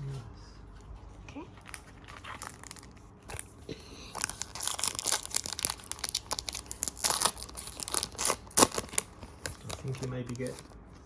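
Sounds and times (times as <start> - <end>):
foil wrapper crinkling and tearing: 2.1 - 10.8.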